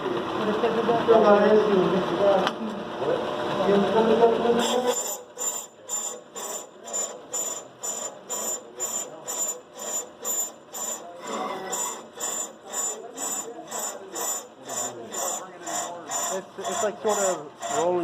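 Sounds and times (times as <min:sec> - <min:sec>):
lathe bit scraping brake rotor: 0:03.8 - 0:18.0.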